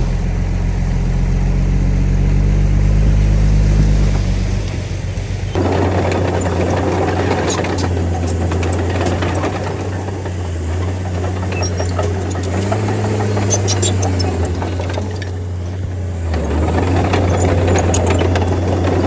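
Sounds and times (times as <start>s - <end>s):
bulldozer diesel engine running: 0.0s - 19.0s
sharp clicks and clanks: 4.0s - 19.0s.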